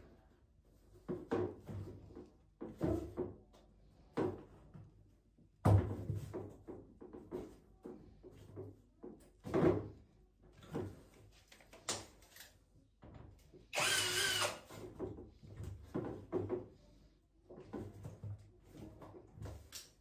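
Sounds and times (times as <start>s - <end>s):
cordless drill running: 13.7s - 14.7s.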